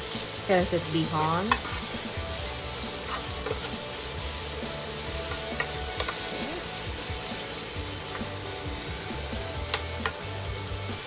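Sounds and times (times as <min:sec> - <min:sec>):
food sizzling in frying pan: 0:00.0 - 0:11.0
metal spoon clicking on pan: 0:05.3 - 0:06.2.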